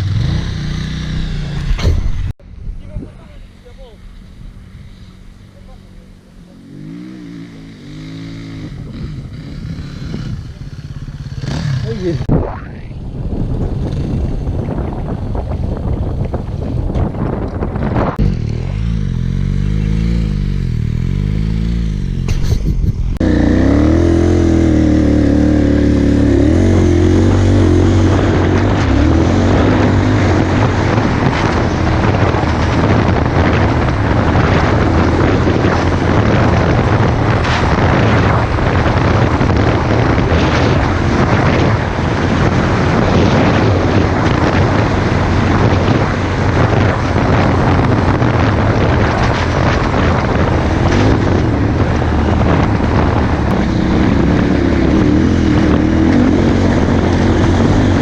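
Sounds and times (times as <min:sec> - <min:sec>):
motorcycle engine accelerating: 0:00.0 - 0:58.0
wind noise: 0:00.0 - 0:58.0.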